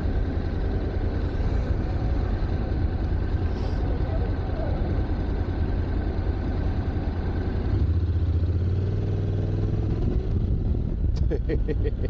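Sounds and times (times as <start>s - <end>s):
motorcycle engine idling: 0.0s - 8.8s
traffic: 0.0s - 12.0s.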